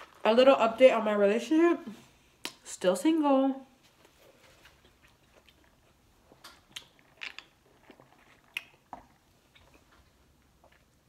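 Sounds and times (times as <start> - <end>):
person chewing with mouth clicks: 4.8 - 11.0.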